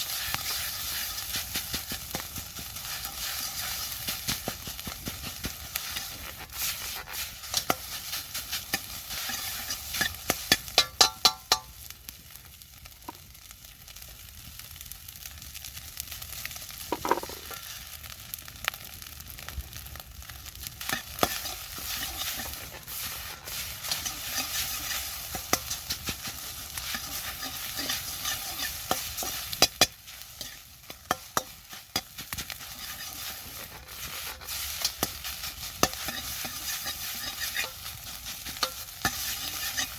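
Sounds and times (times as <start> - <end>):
utensil scraping a pan: 0.0 - 11.7, 16.9 - 17.6, 20.8 - 39.9
food sizzling in a wok: 0.0 - 39.9.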